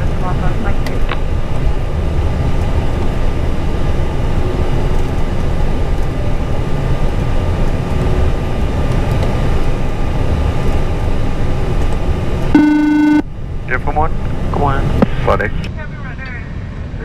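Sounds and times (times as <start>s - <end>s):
aircraft cockpit rumble: 12.6s - 13.2s.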